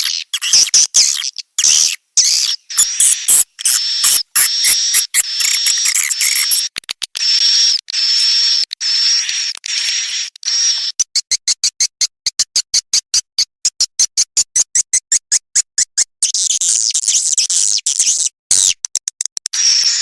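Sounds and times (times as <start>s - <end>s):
swiftlet twittering chirps: 0.3s - 6.7s
rapid high clicks: 2.7s - 10.6s.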